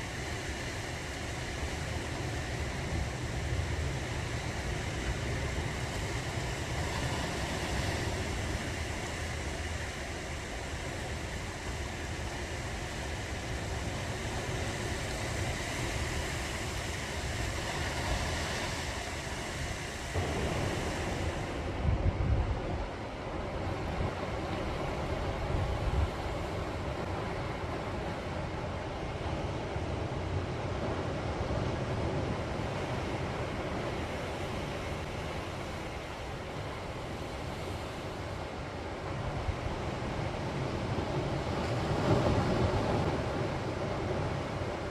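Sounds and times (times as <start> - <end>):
sea waves washing on shore: 0.0 - 44.9
wind rumbling on microphone: 13.3 - 36.0
wind blowing on microphone: 19.5 - 26.9.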